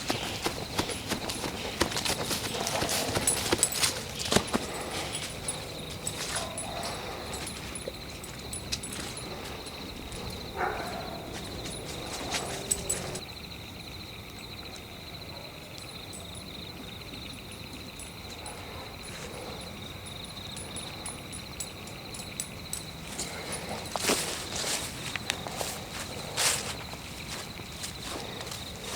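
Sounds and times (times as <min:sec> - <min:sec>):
footsteps crunching on forest floor: 0:00.0 - 0:09.6, 0:10.2 - 0:13.2, 0:23.1 - 0:28.9
insect chirring: 0:00.0 - 0:15.2, 0:15.8 - 0:28.9.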